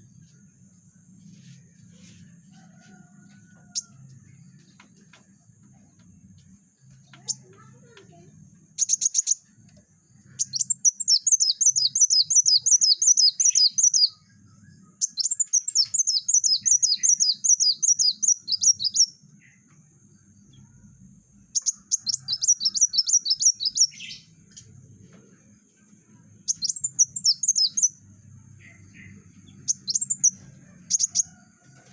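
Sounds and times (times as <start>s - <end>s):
sunbird singing: 6.9s - 24.4s, 25.4s - 31.7s.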